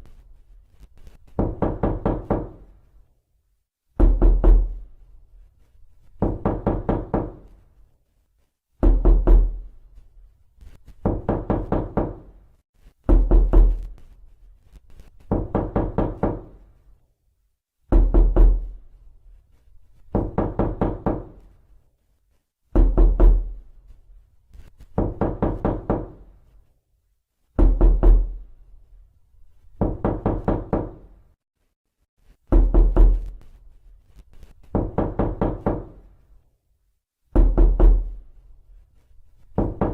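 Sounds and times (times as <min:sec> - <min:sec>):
knocking on a door: 0:01.3 - 0:02.7, 0:04.0 - 0:04.8, 0:06.2 - 0:07.5, 0:08.8 - 0:09.7, 0:11.0 - 0:12.4, 0:13.0 - 0:13.9, 0:15.2 - 0:16.6, 0:17.8 - 0:18.8, 0:20.1 - 0:21.4, 0:22.7 - 0:23.6, 0:24.9 - 0:26.3, 0:27.6 - 0:28.4, 0:29.8 - 0:31.1, 0:32.5 - 0:33.4, 0:34.7 - 0:36.1, 0:37.3 - 0:38.2, 0:39.5 - 0:39.9.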